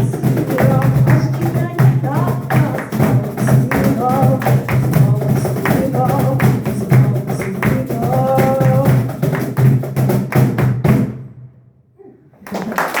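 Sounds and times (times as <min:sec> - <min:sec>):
live music with fast percussion: 0:00.0 - 0:11.2
audience applause: 0:12.4 - 0:13.0.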